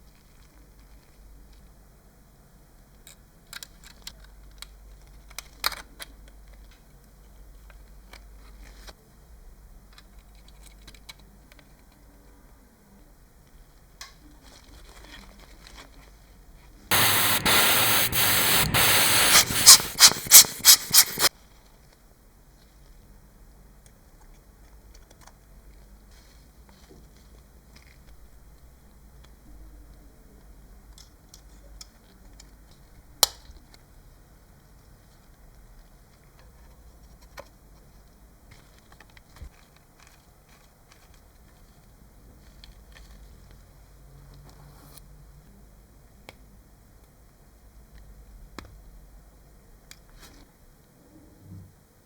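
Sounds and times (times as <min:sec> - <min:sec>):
compressed air hissing blasts: 0:16.9 - 0:21.3
faint tapping and handling: 0:16.9 - 0:21.3.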